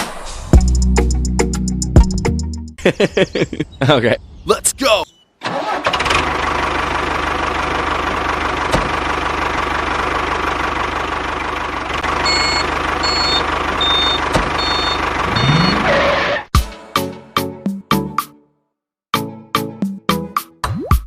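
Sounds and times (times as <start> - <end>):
tractor engine running: 5.4 - 16.4
short high beeps: 12.3 - 15.8.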